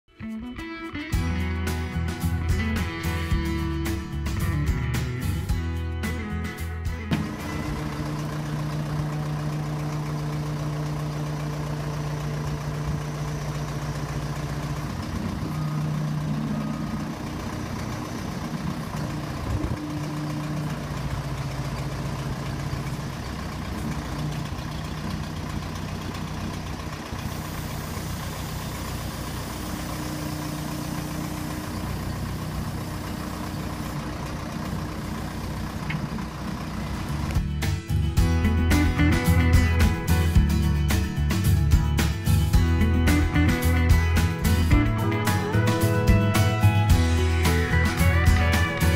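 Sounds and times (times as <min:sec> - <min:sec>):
tractor engine idling: 0:01.0 - 0:48.9.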